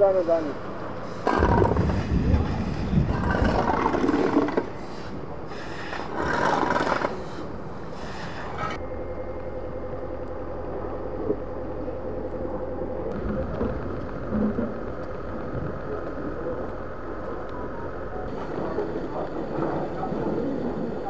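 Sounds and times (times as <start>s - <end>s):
motor humming with whine: 7.2s - 21.0s.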